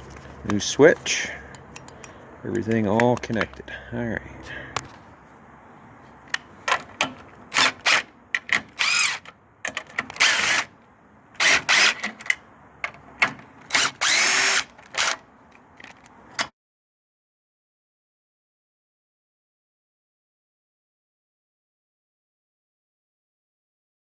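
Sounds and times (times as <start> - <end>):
power drill running in bursts: 8.8 - 9.2, 10.2 - 10.7, 11.4 - 12.0, 13.8 - 15.2.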